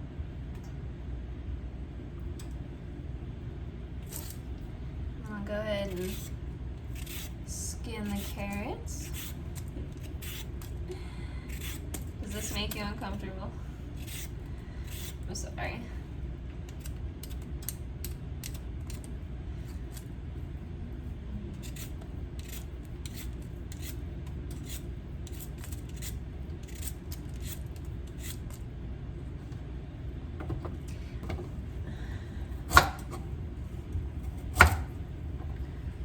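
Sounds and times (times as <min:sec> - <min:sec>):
low steady hum: 0:00.0 - 0:36.0
peeler scraping carrots: 0:05.8 - 0:10.8, 0:11.5 - 0:13.1, 0:14.0 - 0:15.3, 0:21.5 - 0:28.6.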